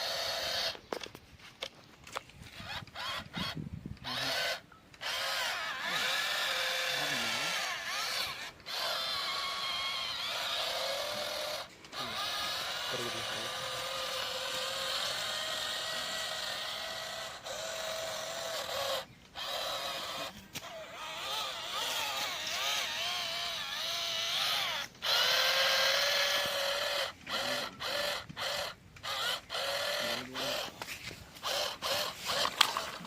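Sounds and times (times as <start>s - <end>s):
toy electric motor whining: 0.0s - 1.2s, 2.0s - 33.0s.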